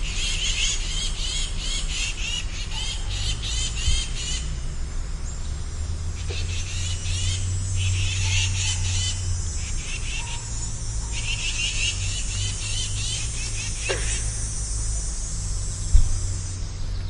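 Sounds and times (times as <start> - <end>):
steady low rumble: 0.9 - 17.0
rapid chirping trills: 5.2 - 17.0.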